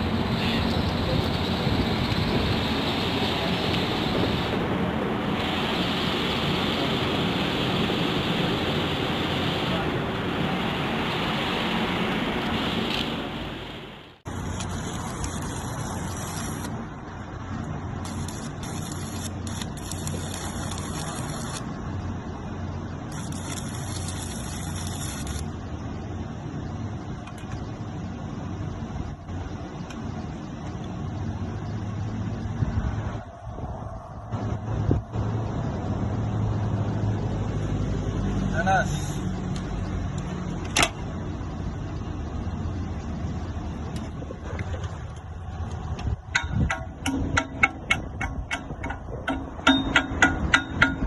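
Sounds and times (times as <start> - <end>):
welding arc crackling: 0.0 - 22.0, 22.9 - 25.7
engine running with low rumble: 0.0 - 51.0
sharp knocks: 46.3 - 51.0.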